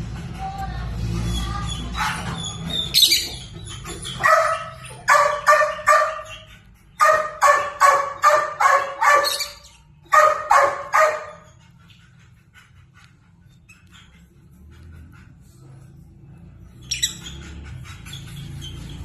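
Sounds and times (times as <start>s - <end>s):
animal barking calls: 1.6s - 11.6s.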